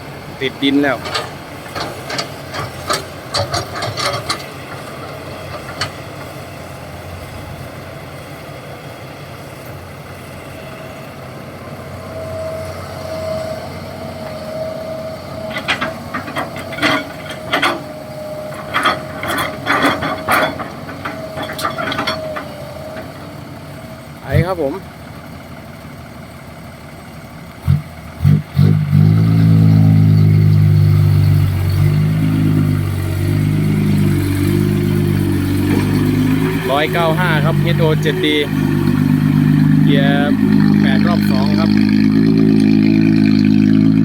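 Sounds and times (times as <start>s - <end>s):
heavy diesel machinery running: 0.0s - 44.0s
metallic clanks and knocks: 0.9s - 6.4s, 15.4s - 23.2s.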